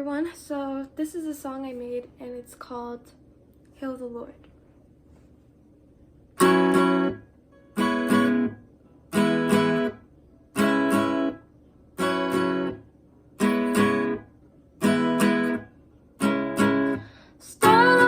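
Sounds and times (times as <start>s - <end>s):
acoustic guitar strummed chords: 6.4s - 18.0s.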